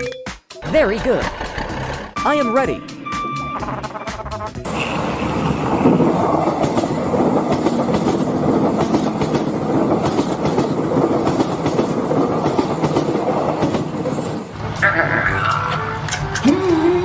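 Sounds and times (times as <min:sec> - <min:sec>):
train-like clickety-clack rumble: 0:04.7 - 0:14.6.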